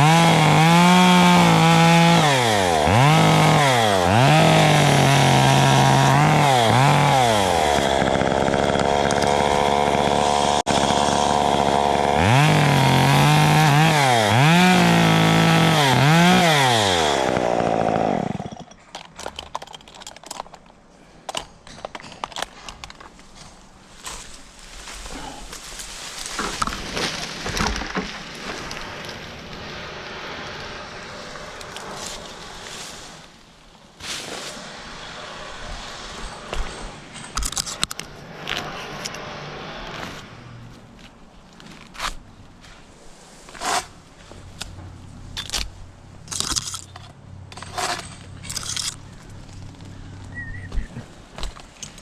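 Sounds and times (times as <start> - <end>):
chainsaw running: 0.0 - 18.7.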